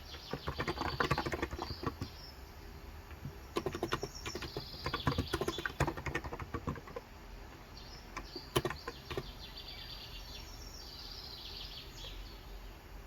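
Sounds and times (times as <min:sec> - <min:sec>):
small birds chirping: 0:00.0 - 0:13.0
keyboard keystrokes: 0:00.1 - 0:02.1, 0:03.1 - 0:07.1, 0:08.2 - 0:09.3.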